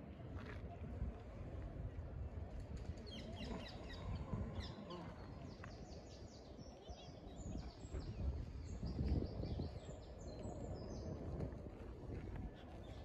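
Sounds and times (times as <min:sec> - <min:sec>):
small birds singing: 0:03.0 - 0:11.4.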